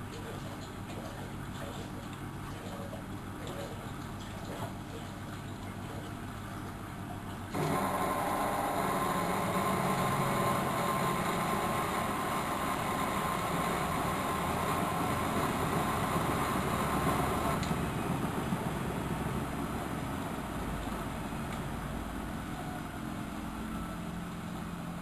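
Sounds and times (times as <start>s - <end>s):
washing machine hum: 0.0s - 25.0s
louder steady machine sound: 7.5s - 20.5s.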